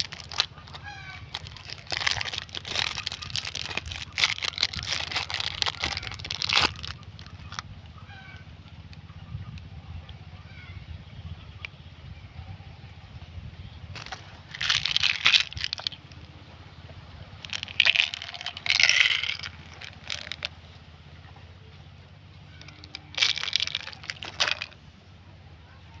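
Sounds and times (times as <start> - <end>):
candy wrappers crinkling: 0.0 - 7.6, 14.0 - 16.0, 17.4 - 20.5, 22.7 - 24.8
low steady hum: 0.0 - 26.0.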